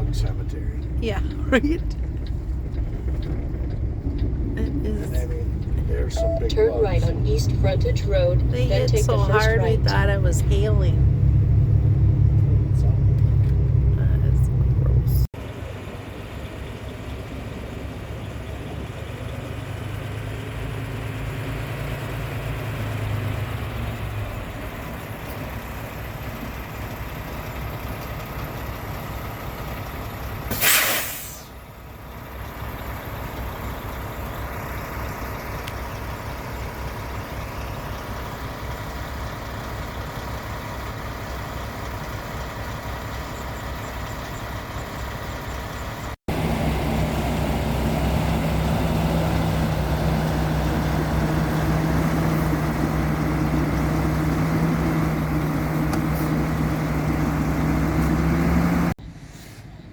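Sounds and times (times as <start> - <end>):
diesel engine rumble: 0.0 - 59.9
air brake hiss: 30.5 - 31.6, 59.1 - 59.7.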